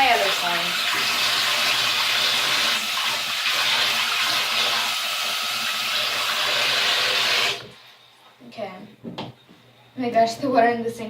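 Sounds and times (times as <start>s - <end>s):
tap water pouring into sink: 0.0s - 7.9s.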